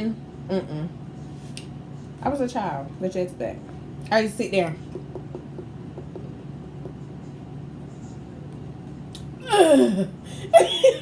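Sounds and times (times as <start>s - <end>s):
woman's breathy whiny moan: 9.4s - 10.5s.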